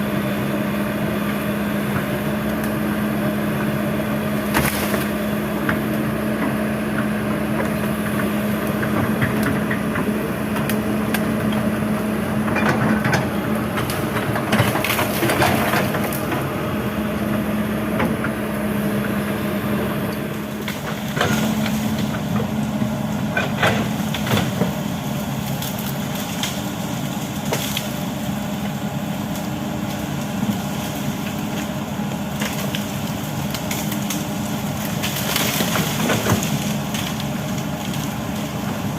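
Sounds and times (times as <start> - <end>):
excavator diesel engine running: 0.0 - 38.9
wood cracking and splintering: 4.3 - 11.8, 12.4 - 16.6, 20.1 - 38.9.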